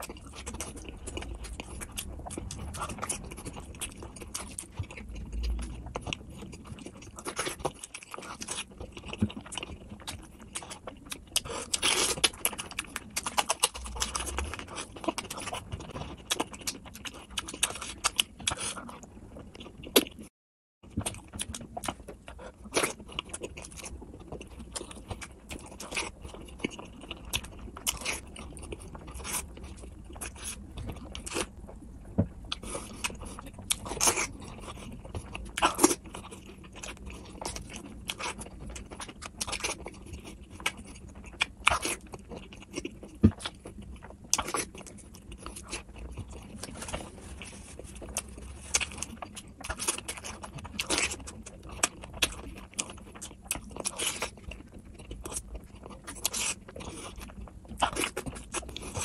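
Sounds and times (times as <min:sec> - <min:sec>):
wet chewing with mouth clicks: 0:00.0 - 0:20.3, 0:20.9 - 0:59.0.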